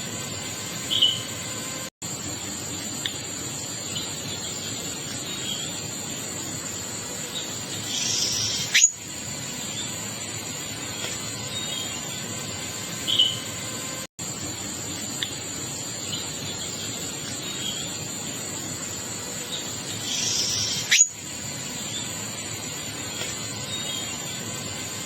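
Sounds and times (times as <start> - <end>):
high insect drone: 0.0 - 25.0
wild birds chirping: 3.7 - 10.0, 19.3 - 24.6.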